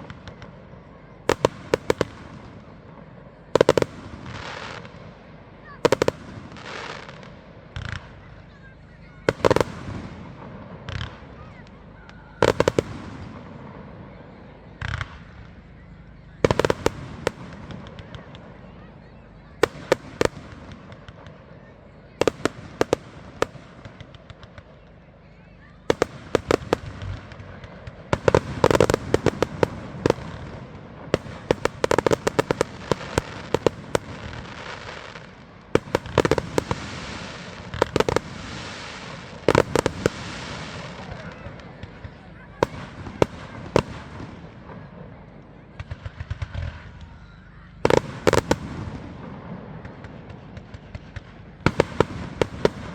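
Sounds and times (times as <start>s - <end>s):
firework bangs: 0.0s - 47.2s, 47.8s - 52.9s
firework rushing burst: 25.9s - 42.0s.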